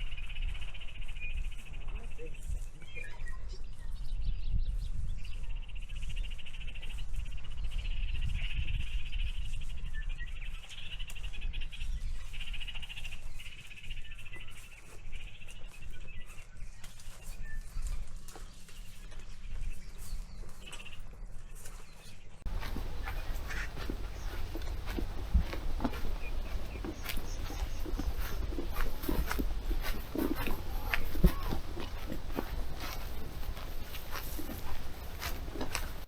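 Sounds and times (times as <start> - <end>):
wind on microphone: 1.2 - 10.4, 22.5 - 36.0
insects trilling: 22.5 - 36.0.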